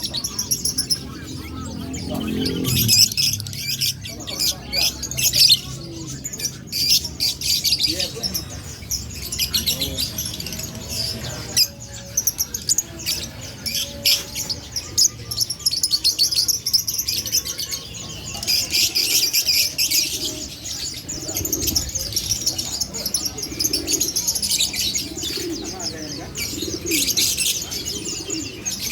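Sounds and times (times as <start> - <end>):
songbirds chirping: 0.0 - 28.9.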